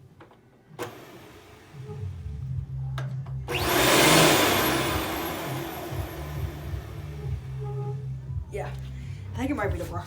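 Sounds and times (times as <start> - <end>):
vacuum cleaner motor running: 0.8 - 1.9, 3.5 - 7.6.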